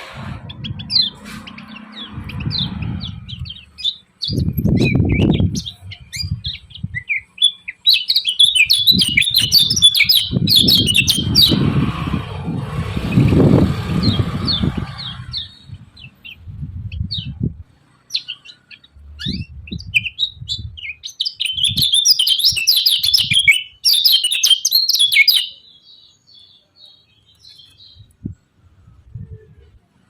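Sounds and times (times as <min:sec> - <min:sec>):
low rumble: 0:00.0 - 0:07.0, 0:08.9 - 0:17.7
bird chirping and twittering: 0:00.0 - 0:28.5.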